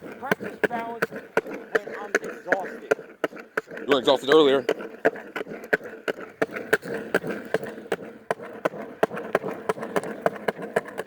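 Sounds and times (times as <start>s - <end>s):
skateboard wheel rumble: 0.0s - 11.0s
skateboard wheels clacking on seams: 0.0s - 11.0s.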